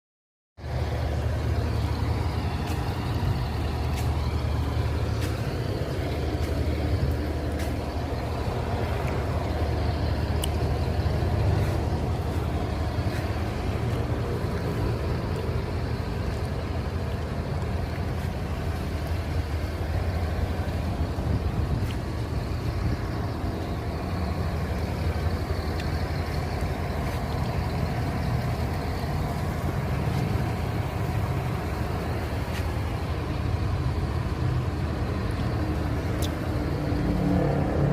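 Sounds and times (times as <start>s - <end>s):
vehicle engine humming: 0.6s - 37.9s
faint irregular clicks: 5.2s - 11.2s, 21.7s - 33.6s, 35.0s - 37.0s.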